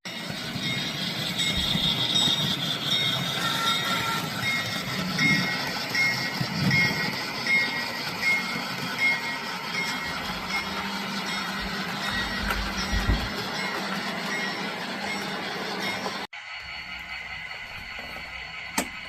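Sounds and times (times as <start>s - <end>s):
model train running: 0.1s - 19.0s
bell dinging: 0.6s - 16.2s.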